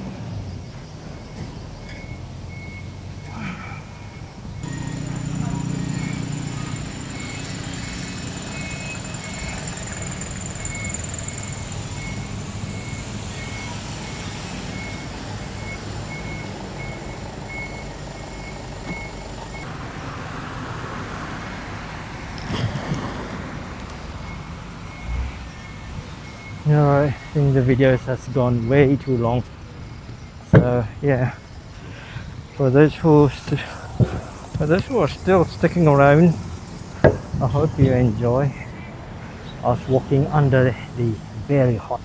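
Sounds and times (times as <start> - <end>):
engines running: 0.0 - 31.9
reversing alarm beeping: 0.6 - 19.7, 24.1 - 30.6.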